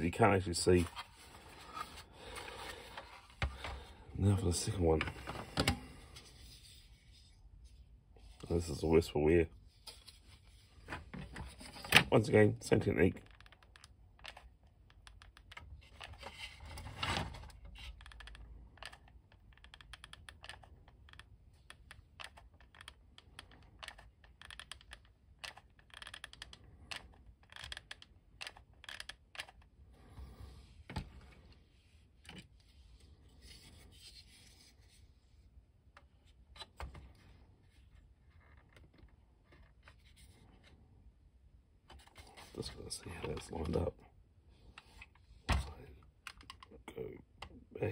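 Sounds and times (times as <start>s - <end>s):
hands clicking plastic toy: 17.8s - 29.6s.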